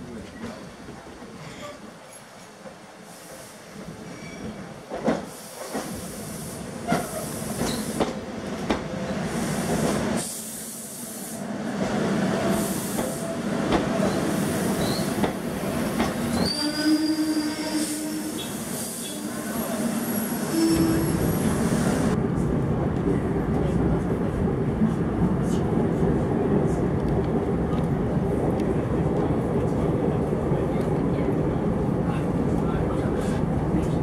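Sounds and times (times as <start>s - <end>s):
short high wheel squeal: 20.2s - 21.4s.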